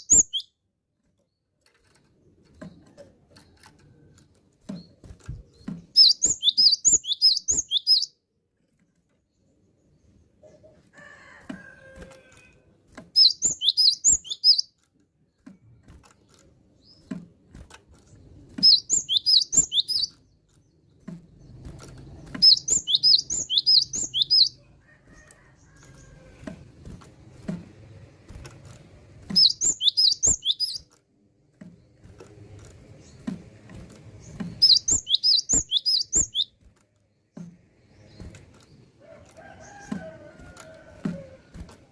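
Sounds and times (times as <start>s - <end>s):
bird singing high whistled notes: 0.0s - 0.6s, 6.0s - 8.2s, 13.2s - 14.7s, 18.6s - 20.1s, 22.4s - 24.6s, 29.3s - 30.8s, 34.6s - 36.5s.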